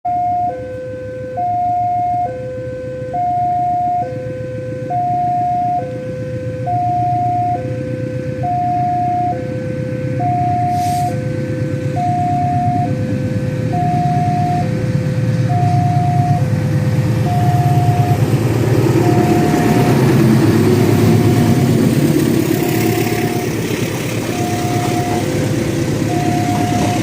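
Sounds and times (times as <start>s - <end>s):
electronic two-tone alarm: 0.1s - 16.6s, 17.2s - 18.2s, 18.8s - 27.0s
diesel locomotive engine rumble: 0.1s - 27.0s
brief hiss: 10.7s - 11.2s.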